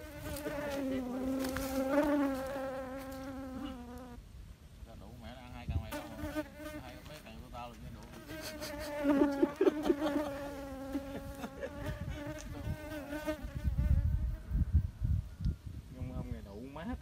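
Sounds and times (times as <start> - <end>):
insect buzzing: 0.0 - 4.3, 5.7 - 7.4, 8.0 - 15.4.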